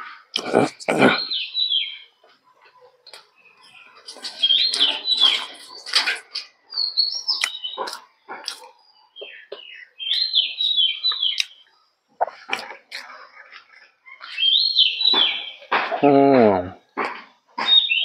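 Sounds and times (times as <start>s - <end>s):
wet chewing and mouth clicks: 0.3s - 1.0s, 7.3s - 8.9s, 11.1s - 11.6s, 12.2s - 14.4s
bird whistling song: 1.2s - 2.1s, 3.4s - 6.0s, 6.7s - 8.0s, 9.1s - 11.7s, 14.0s - 15.7s, 17.6s - 18.0s.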